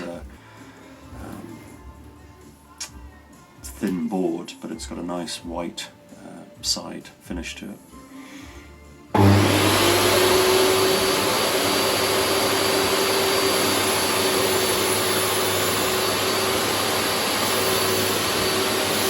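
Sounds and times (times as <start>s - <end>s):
table saw running: 9.2s - 19.0s.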